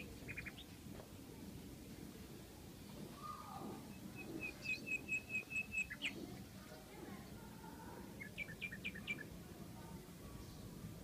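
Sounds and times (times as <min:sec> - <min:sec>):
small songbird chirping: 0:00.0 - 0:00.8, 0:02.8 - 0:06.6, 0:08.1 - 0:09.4.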